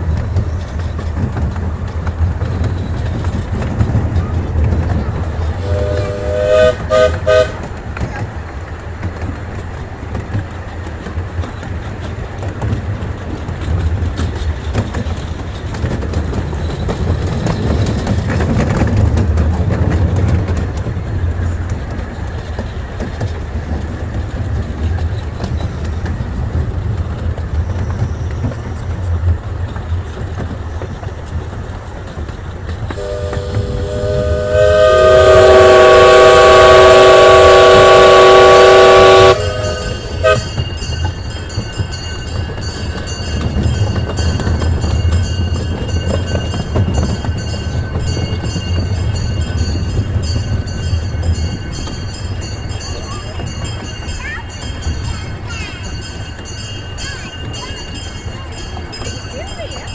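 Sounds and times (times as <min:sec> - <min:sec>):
miniature train on rails: 0:00.0 - 0:59.9
chime steam whistle: 0:05.6 - 0:07.6, 0:33.0 - 0:41.0.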